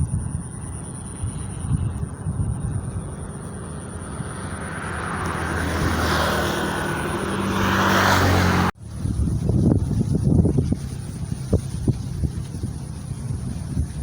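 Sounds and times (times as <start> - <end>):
engine approaching: 0.4 - 14.0.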